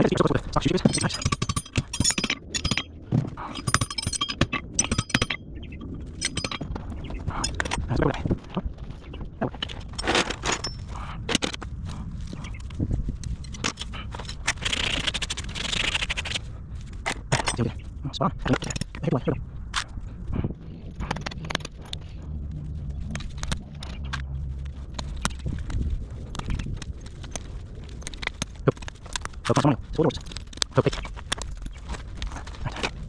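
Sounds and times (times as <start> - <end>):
hammer ringing on horseshoe: 0.8 - 5.4, 6.2 - 6.7
rasp scraping: 13.5 - 17.3.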